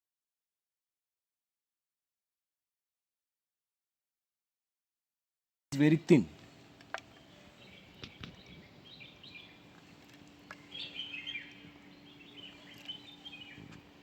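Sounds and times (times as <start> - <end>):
birds chirping: 5.7 - 14.0
faint hum: 5.8 - 14.0.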